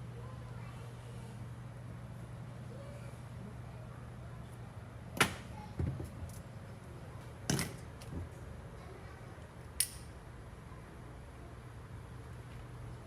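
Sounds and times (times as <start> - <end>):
steady low hum: 0.0 - 13.0
sharp high click: 9.8 - 10.1.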